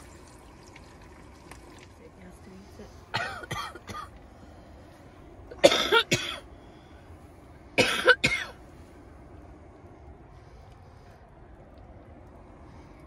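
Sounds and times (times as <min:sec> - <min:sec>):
person coughing: 0:03.1 - 0:04.1, 0:05.5 - 0:06.4, 0:07.8 - 0:08.6.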